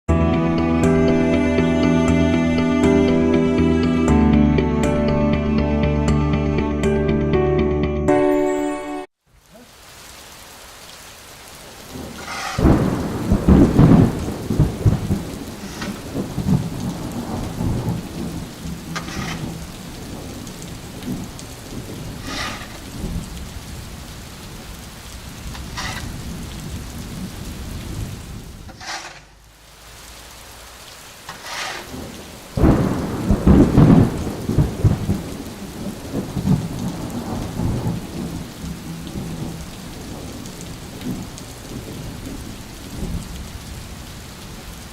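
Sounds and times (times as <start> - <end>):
heavy rain falling: 9.2 - 44.9
rolling thunder: 11.8 - 28.7, 31.8 - 44.7.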